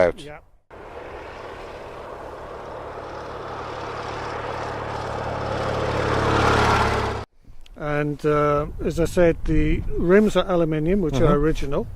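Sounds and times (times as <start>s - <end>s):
motorcycle engine running: 0.7s - 7.3s.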